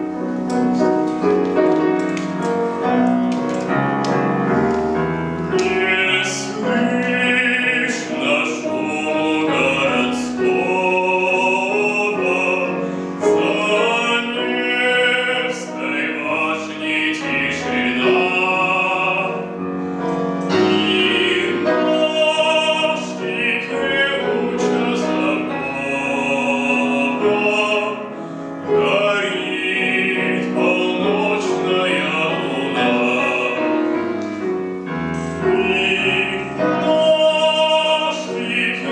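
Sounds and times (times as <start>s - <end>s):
piano accompaniment: 0.0s - 38.9s
man singing operatically: 5.5s - 19.6s, 20.5s - 33.9s, 35.3s - 38.9s.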